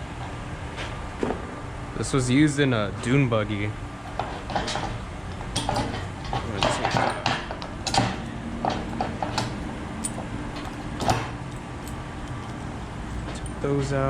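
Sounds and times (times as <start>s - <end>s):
low background hum: 0.0s - 14.0s
metal tools clinking: 4.1s - 14.0s.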